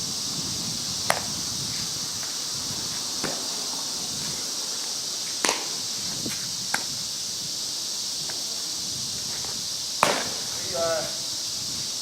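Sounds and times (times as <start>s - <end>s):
insects hissing: 0.0s - 12.0s
bat striking ball crack: 1.0s - 1.3s, 3.2s - 3.5s, 5.4s - 5.8s, 10.0s - 10.6s.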